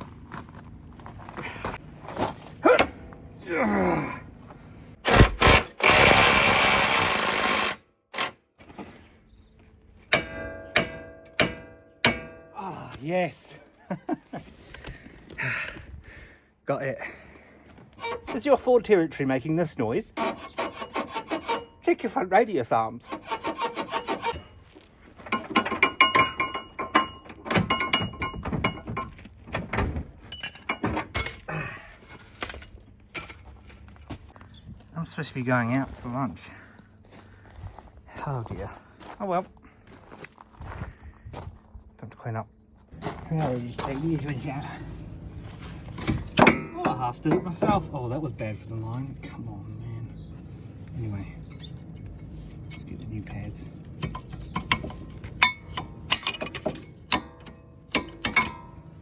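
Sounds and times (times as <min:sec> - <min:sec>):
power tool running: 0:05.1 - 0:08.3
sharp metal knocks: 0:10.1 - 0:12.6, 0:25.3 - 0:31.4, 0:46.0 - 0:47.8, 0:54.0 - 0:58.9
short squeaky tones: 0:18.0 - 0:18.4.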